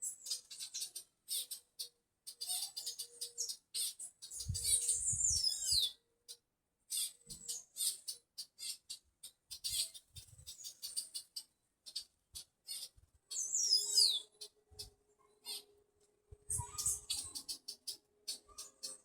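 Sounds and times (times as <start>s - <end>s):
birds chirping: 2.4s - 6.0s, 7.3s - 15.8s, 16.5s - 19.0s.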